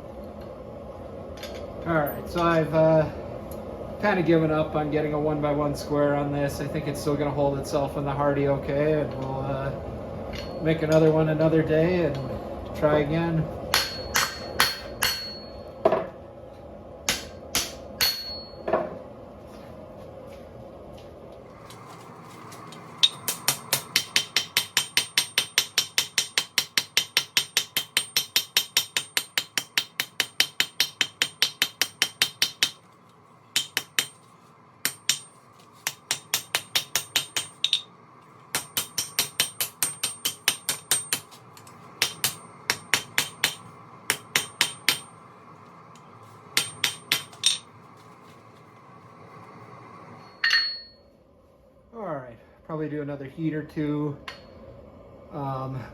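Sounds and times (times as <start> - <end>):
forge burner rushing: 0.0 - 50.8
hammer ringing on anvil: 10.3 - 10.9, 13.7 - 15.7, 17.1 - 18.7, 23.0 - 32.8, 33.6 - 34.2, 34.9 - 35.3, 35.9 - 37.9, 38.6 - 41.3, 42.0 - 45.2, 46.6 - 47.7, 50.3 - 51.0.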